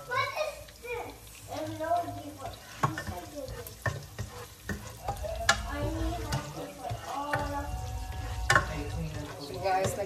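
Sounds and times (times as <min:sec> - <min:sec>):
food sizzling in a pot: 0:00.0 - 0:10.0
spatula knocking against pot: 0:02.7 - 0:10.0.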